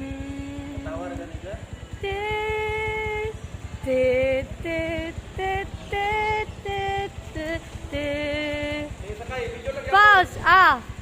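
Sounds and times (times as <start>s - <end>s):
person singing wordless tune: 0.0s - 1.2s, 1.9s - 9.0s
low pulsing rumble: 0.0s - 11.0s.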